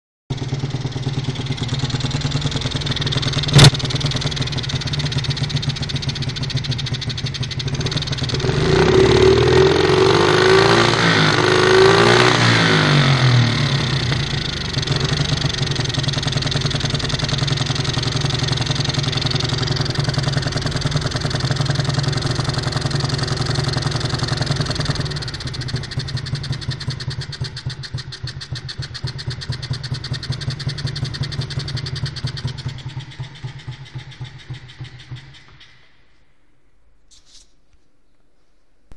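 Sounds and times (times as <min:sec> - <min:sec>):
dirt bike engine idling and revving: 0:00.3 - 0:36.3
sharp click: 0:03.5 - 0:03.8.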